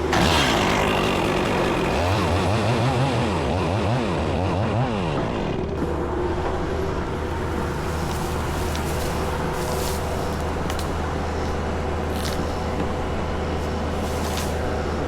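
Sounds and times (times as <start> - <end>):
engine revving: 0.0 - 6.0.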